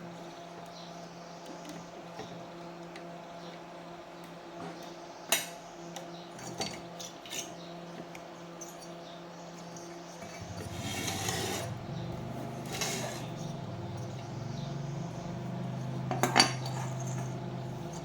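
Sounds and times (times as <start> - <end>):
rough buzzing noise: 10.3 - 18.0.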